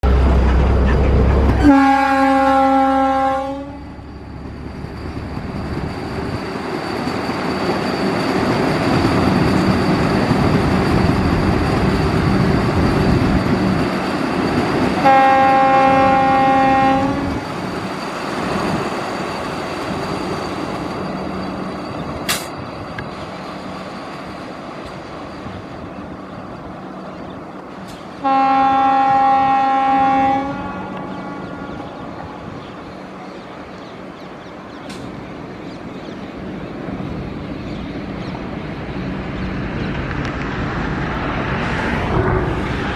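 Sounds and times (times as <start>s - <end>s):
train rumbling past: 0.0s - 42.9s
train horn blasts: 1.5s - 4.0s, 15.0s - 17.4s, 28.2s - 32.0s.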